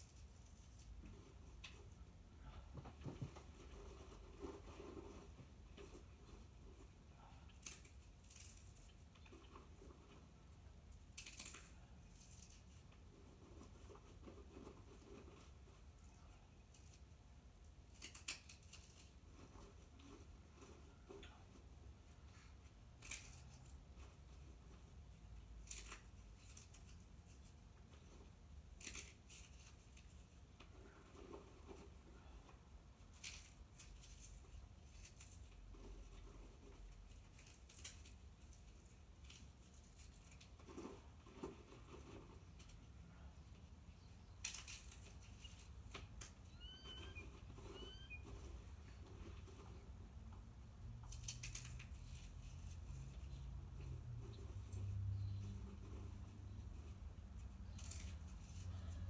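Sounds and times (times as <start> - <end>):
short high bird chirps: 46.5 - 48.2.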